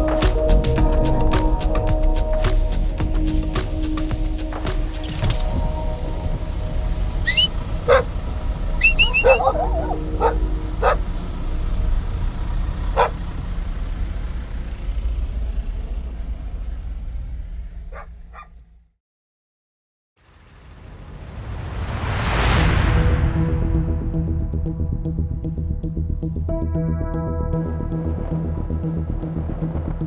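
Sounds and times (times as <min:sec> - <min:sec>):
dog barking and yipping: 0:07.2 - 0:11.2, 0:12.9 - 0:13.3, 0:17.9 - 0:18.6.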